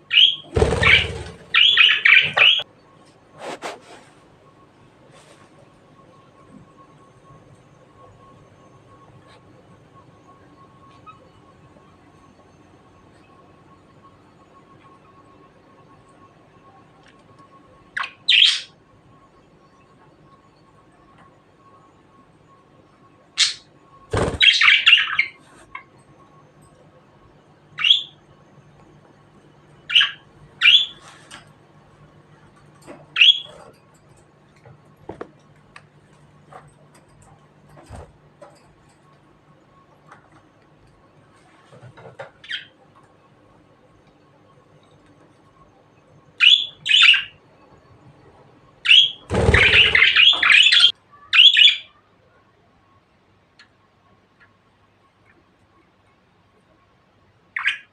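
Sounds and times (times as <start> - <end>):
budgerigar chirping: 0.1 - 2.6, 46.4 - 47.3, 48.8 - 51.9
budgerigar harsh chattering: 0.1 - 2.6, 48.9 - 51.8.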